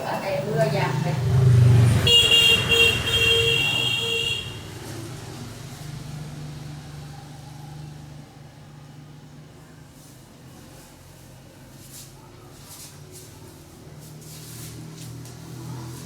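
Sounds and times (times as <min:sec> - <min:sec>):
traffic noise: 0:00.0 - 0:16.0
vehicle horn sounding: 0:01.9 - 0:04.8.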